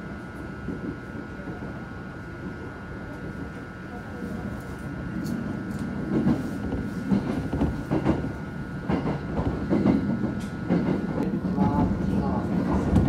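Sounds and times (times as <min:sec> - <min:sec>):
train interior rumble: 0:00.0 - 0:13.0.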